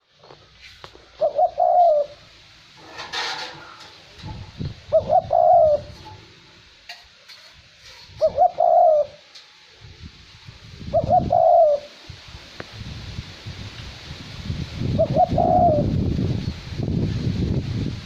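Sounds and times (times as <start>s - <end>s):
dove cooing: 1.1s - 2.3s, 2.9s - 6.6s, 8.1s - 9.4s, 10.8s - 12.0s, 14.9s - 15.9s
wind rumble on microphone: 4.2s - 6.2s, 9.8s - 18.0s.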